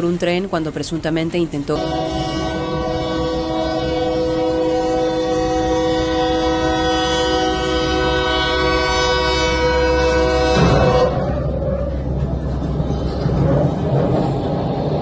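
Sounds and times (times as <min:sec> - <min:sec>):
moving train rumble: 0:00.0 - 0:15.0
train horn long blast: 0:01.8 - 0:12.0.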